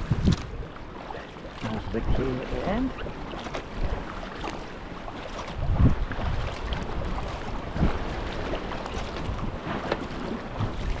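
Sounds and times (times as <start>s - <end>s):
wind buffeting microphone: 0.0s - 4.5s, 5.1s - 11.0s
water sloshing around kayak: 0.0s - 11.0s.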